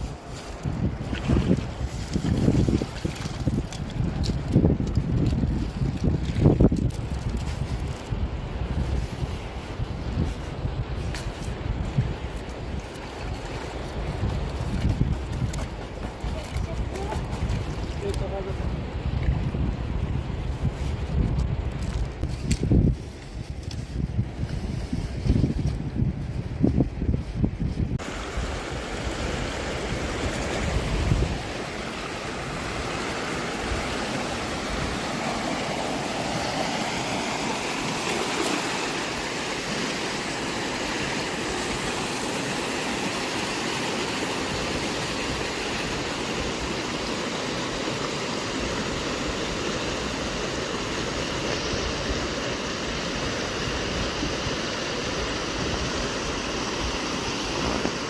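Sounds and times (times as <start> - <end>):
river water rushing: 28.0 - 58.0.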